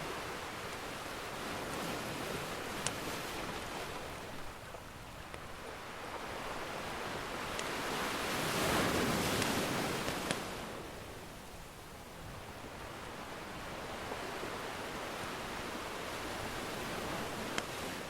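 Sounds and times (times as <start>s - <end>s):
ocean surf washing in: 5.8s - 11.0s.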